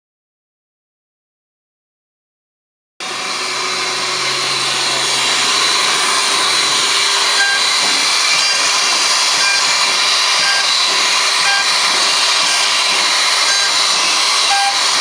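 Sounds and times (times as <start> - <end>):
spindle motor whining: 3.0 - 15.0.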